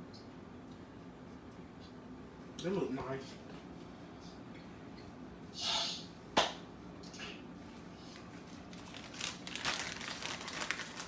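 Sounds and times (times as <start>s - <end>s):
packaging crinkling: 8.2s - 11.0s.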